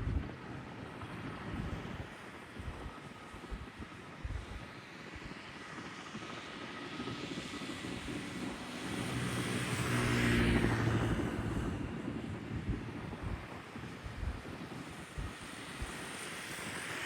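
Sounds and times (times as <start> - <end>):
aircraft flying past: 7.0 - 14.1
low engine hum: 7.9 - 16.0.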